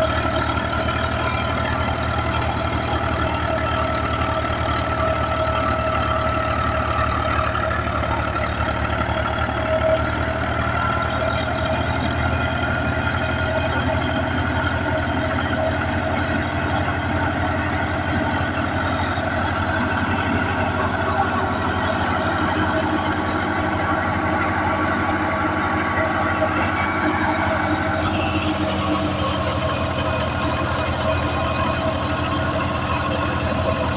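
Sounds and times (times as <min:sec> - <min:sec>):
steady whine: 0:00.0 - 0:33.9
tractor diesel engine running: 0:00.0 - 0:33.9.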